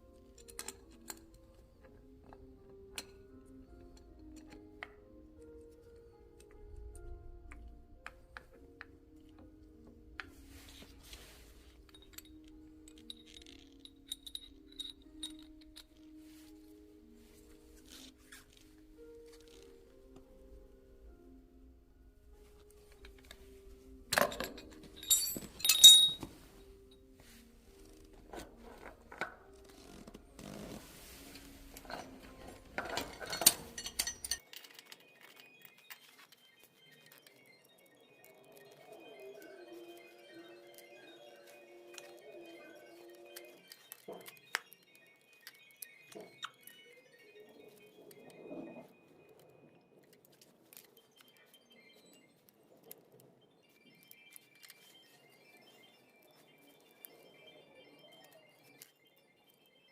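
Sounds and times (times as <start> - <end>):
soft background music: 0.0 - 59.9
light metallic clinks: 10.2 - 16.6, 22.8 - 26.6, 27.3 - 36.0.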